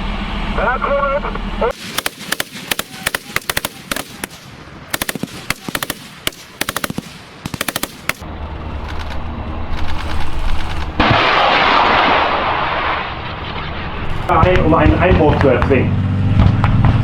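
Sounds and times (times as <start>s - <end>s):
low steady rumble: 0.0s - 16.8s
automatic machine-gun fire: 1.7s - 12.5s
loud rushing blast: 1.7s - 16.6s.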